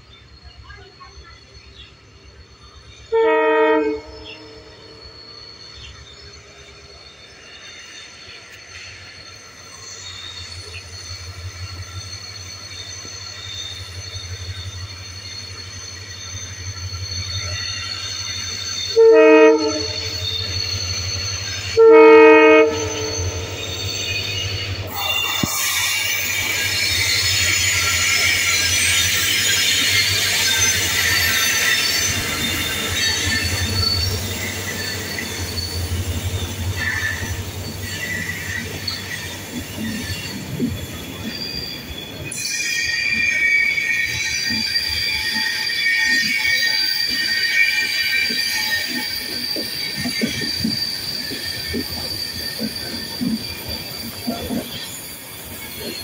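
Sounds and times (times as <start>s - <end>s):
train passing with low rumble: 0.0s - 56.0s
wheels squealing on track: 2.3s - 56.0s
diesel locomotive horn blasts: 3.1s - 4.7s, 19.0s - 20.2s, 21.7s - 23.5s.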